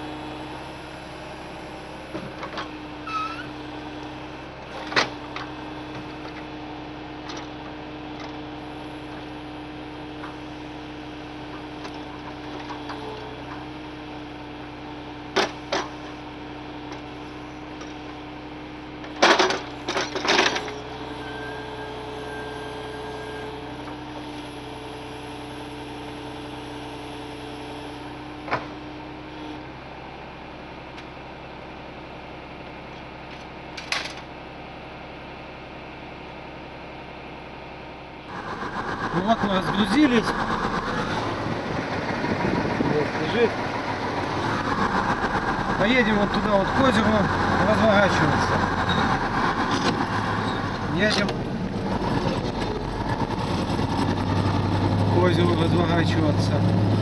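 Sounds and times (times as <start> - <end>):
truck engine hum: 0.0 - 57.0.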